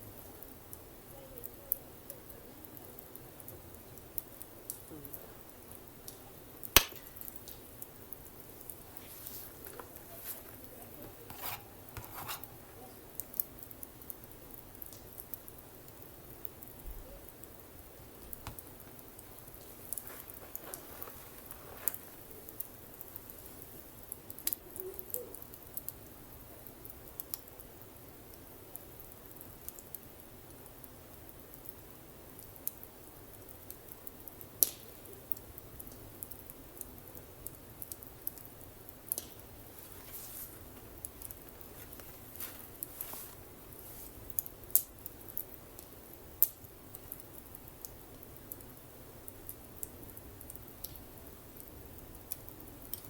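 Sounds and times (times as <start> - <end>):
campfire wood crackling: 0.0 - 53.0
low steady hiss: 0.0 - 53.0
sharp loud pops: 6.8 - 7.3.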